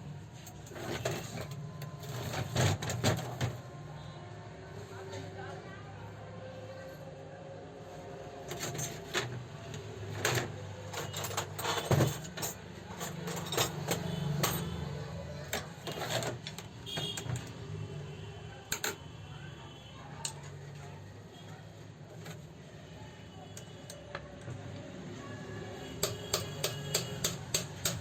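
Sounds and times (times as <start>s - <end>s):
metal parts and tools clinking: 0.4s - 3.6s, 8.5s - 9.4s, 10.1s - 14.9s.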